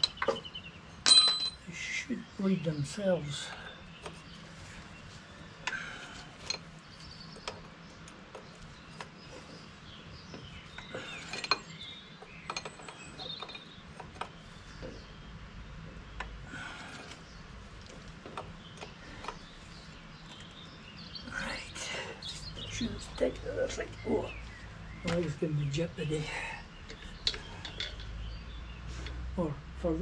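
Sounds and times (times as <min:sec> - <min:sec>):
metal tools clinking: 0:00.0 - 0:01.7, 0:10.8 - 0:13.7, 0:26.9 - 0:28.2.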